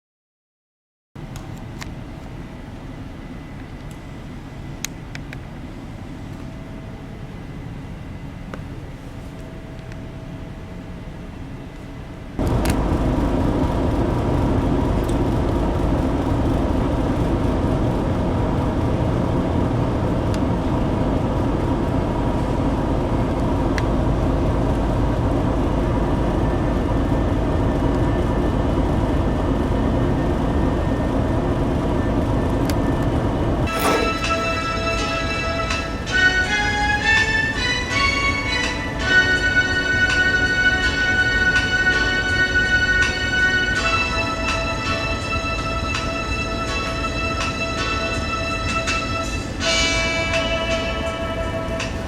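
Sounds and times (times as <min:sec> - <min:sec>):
machinery hum: 0:01.2 - 0:52.0
click: 0:01.3 - 0:02.3, 0:03.6 - 0:04.0, 0:04.8 - 0:05.4, 0:12.5 - 0:12.8
ship engine drone: 0:01.6 - 0:52.0.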